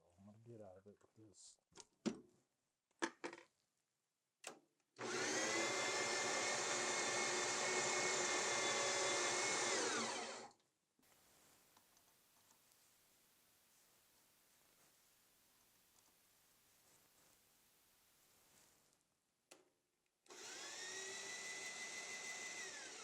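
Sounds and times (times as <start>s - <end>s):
power tool motor running: 5.0s - 10.5s, 20.3s - 23.0s.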